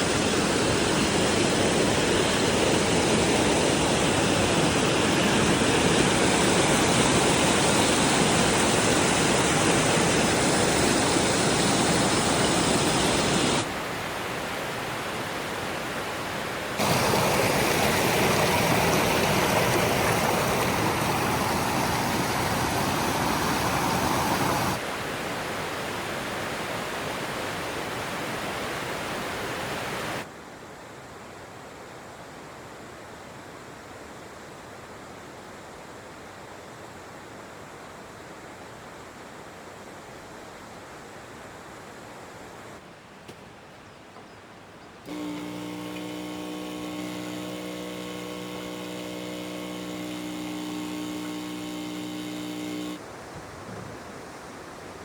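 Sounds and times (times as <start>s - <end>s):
stream water rushing: 0.0s - 30.3s.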